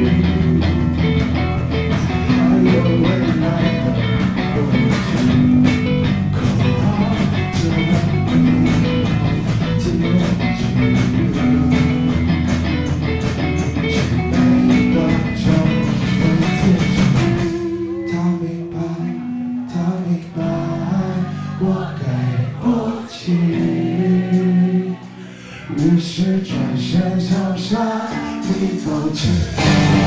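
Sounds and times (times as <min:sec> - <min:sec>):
drum kit: 0:00.0 - 0:18.1, 0:27.2 - 0:30.0
electric guitar: 0:00.0 - 0:22.4, 0:23.2 - 0:30.0
bass guitar: 0:00.0 - 0:30.0.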